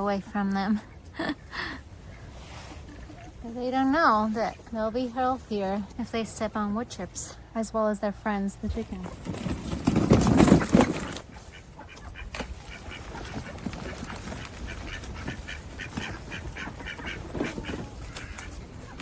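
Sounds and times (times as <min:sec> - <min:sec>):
ducks quacking: 0:10.4 - 0:19.0.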